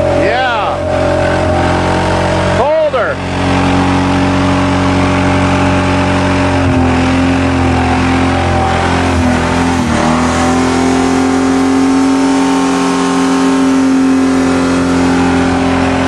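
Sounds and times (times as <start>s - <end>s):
car engine at high revs: 0.0s - 16.0s.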